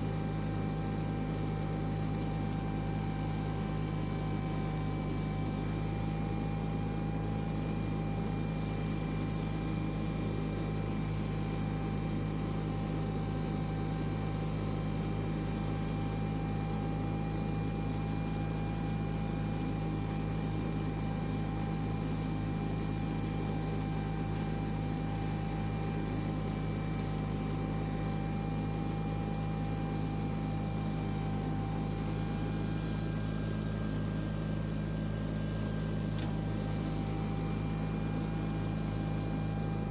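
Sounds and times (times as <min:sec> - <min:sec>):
faint steady whine: 0:00.0 - 0:39.9
lawn tractor engine running: 0:23.6 - 0:39.9.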